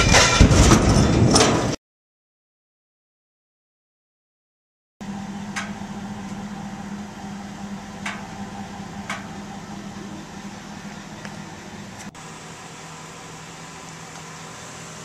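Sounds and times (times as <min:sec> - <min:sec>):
mechanical hum with low tone: 0:05.0 - 0:15.0.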